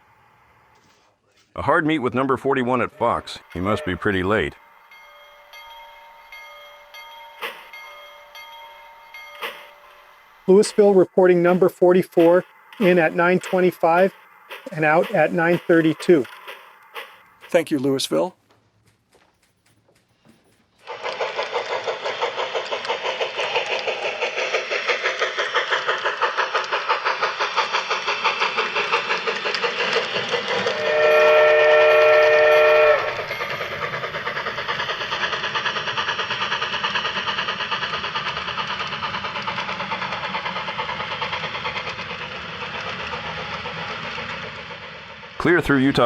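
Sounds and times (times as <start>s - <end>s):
steam locomotive exhaust chuffs: 2.1s - 18.3s, 19.4s - 46.0s
locomotive chime whistle: 3.0s - 18.0s, 30.5s - 35.1s.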